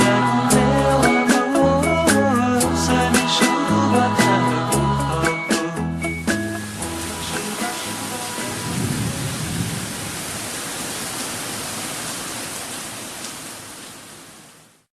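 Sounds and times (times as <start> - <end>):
rain falling: 6.0 - 14.9.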